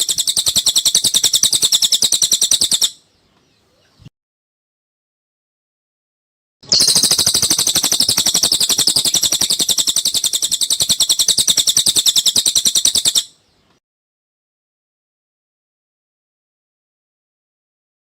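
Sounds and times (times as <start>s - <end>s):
bird trilling: 0.0s - 3.0s, 6.6s - 13.4s.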